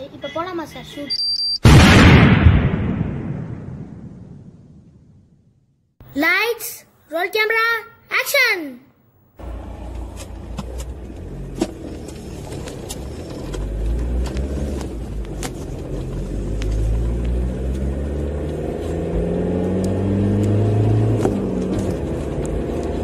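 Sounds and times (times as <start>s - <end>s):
car engine revving: 9.4s - 23.0s.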